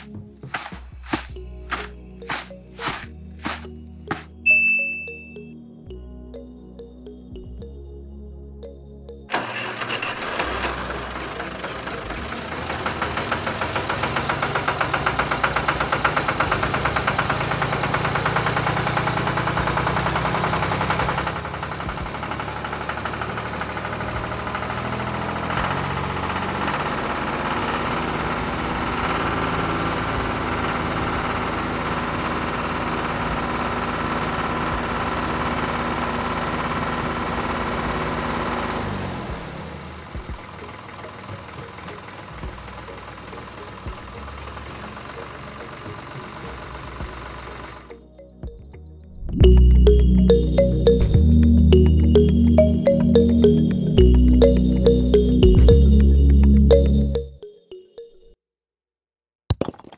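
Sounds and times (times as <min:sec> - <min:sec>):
tractor engine knocking: 0:09.3 - 0:47.9.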